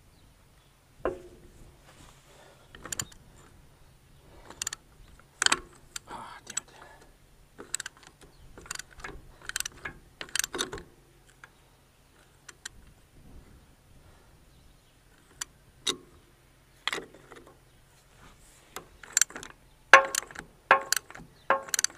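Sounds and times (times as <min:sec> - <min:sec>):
metallic clicks of hand tools: 0:04.5 - 0:04.8, 0:05.4 - 0:06.7, 0:07.6 - 0:11.5, 0:18.8 - 0:21.9.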